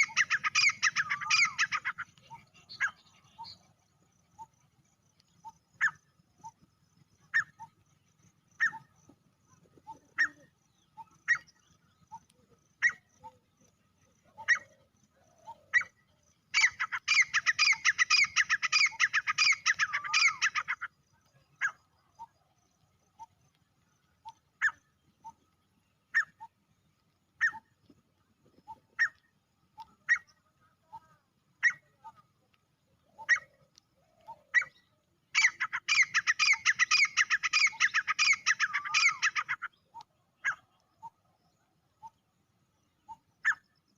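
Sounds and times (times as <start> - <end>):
francolin calling: 0.0 - 3.7, 8.5 - 9.1, 9.8 - 22.4, 23.1 - 27.8, 28.6 - 32.4, 33.0 - 42.3.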